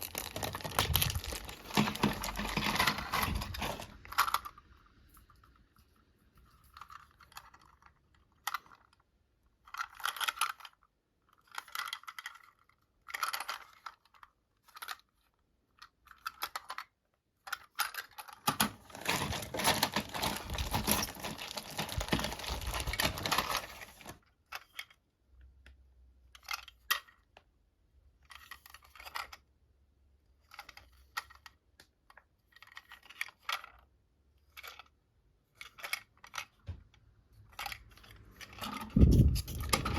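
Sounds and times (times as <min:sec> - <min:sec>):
plastic packaging rustling: 0:00.0 - 0:04.5, 0:18.3 - 0:24.2, 0:38.2 - 0:39.9.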